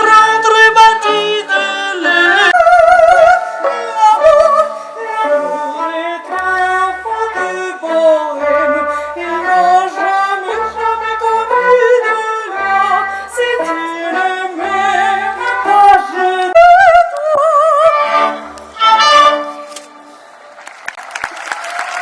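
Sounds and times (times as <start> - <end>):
operatic orchestral music: 8.3 - 16.5, 17.6 - 20.2.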